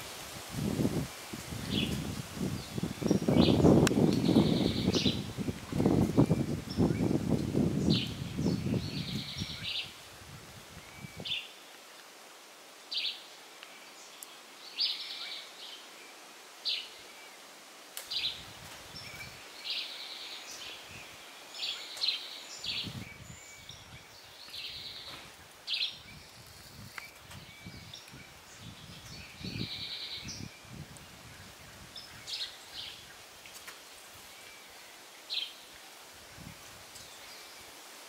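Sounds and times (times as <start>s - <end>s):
low bumps of wind or handling: 0.0s - 9.6s
leaves rustling: 0.0s - 38.0s
birds calling with trills: 1.7s - 5.5s.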